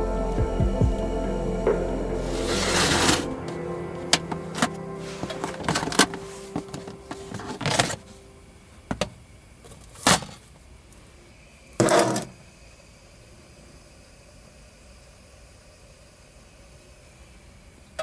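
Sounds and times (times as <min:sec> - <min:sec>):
background music: 0:00.0 - 0:08.5
faint steady hiss: 0:00.0 - 0:18.0
rustling or scraping noises: 0:04.3 - 0:08.2.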